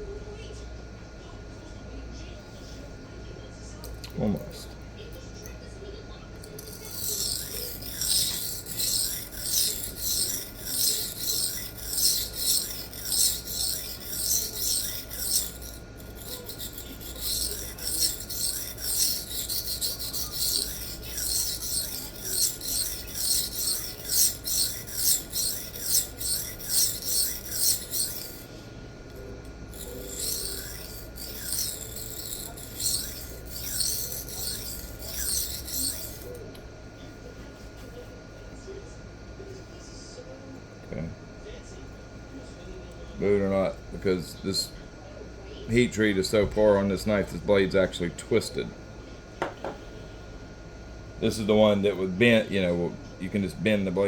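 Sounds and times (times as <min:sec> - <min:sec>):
knife rasping on sharpening plate: 0:06.4 - 0:28.6, 0:29.7 - 0:36.4.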